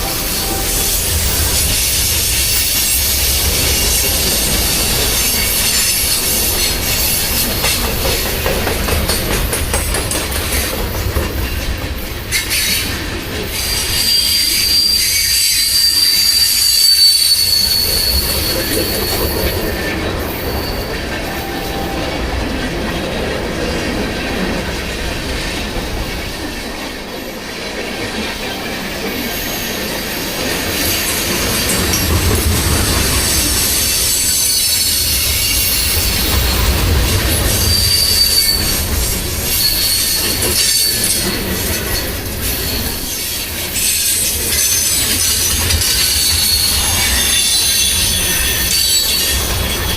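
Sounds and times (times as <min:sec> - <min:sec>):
train cars rumbling on rails: 0:00.0 - 0:49.9
high thin wheel squeal: 0:13.5 - 0:21.9, 0:37.6 - 0:41.6, 0:42.7 - 0:49.9.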